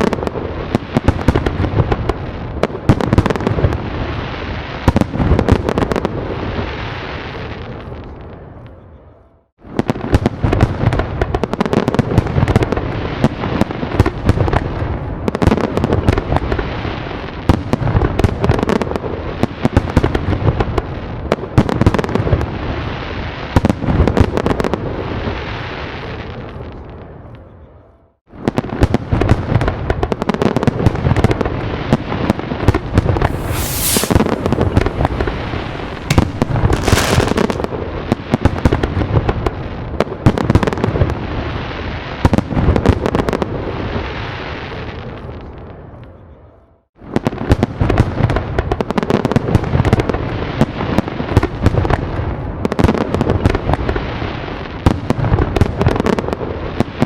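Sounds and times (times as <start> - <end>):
fireworks bangs and crackling: 0.0 - 8.6, 9.6 - 27.0, 28.3 - 46.0, 47.0 - 57.0
hissing firework bursts: 33.0 - 38.0.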